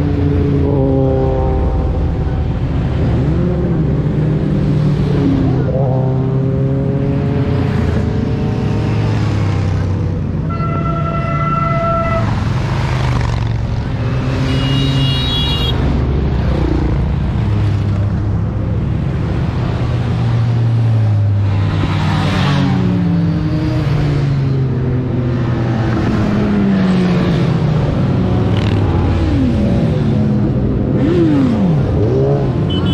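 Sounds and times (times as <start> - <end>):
motorcycle horn: 10.5 - 12.4, 14.4 - 15.8, 32.7 - 32.9
higher-pitched horn: 10.5 - 12.5, 14.4 - 15.8, 32.7 - 32.9
motorcycle engines running: 12.2 - 32.9.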